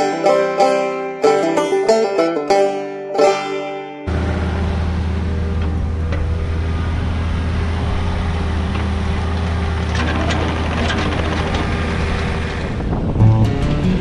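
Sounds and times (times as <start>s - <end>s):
loader engine running: 4.1s - 14.0s.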